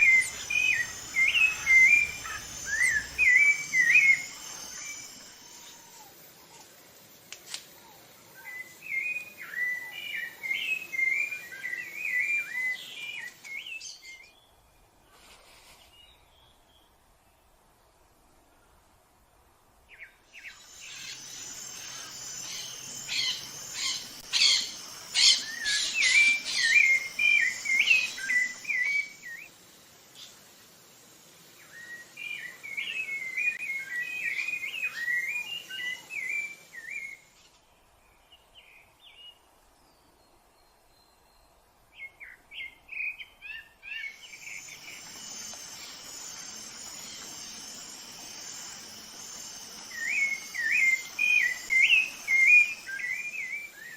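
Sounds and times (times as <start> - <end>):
thrush singing whistled notes: 0.0 - 6.2, 8.3 - 14.5, 20.0 - 29.6, 31.6 - 37.4, 40.0 - 53.9
high insect drone: 0.0 - 14.2, 20.2 - 38.1, 42.9 - 53.9.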